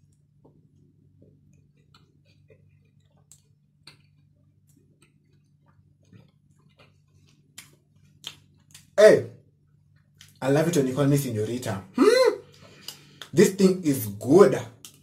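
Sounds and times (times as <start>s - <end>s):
low steady hum: 0.0s - 15.0s
crunchy chewing: 0.6s - 9.0s.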